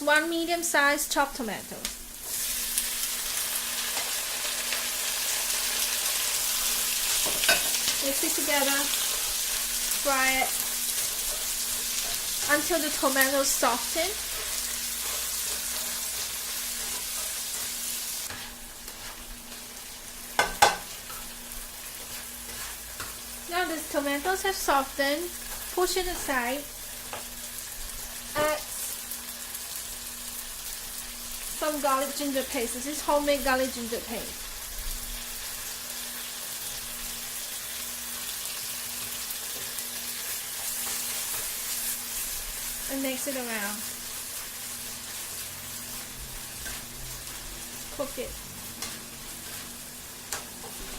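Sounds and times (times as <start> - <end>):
vegetables sizzling in oil: 0.0 - 50.9.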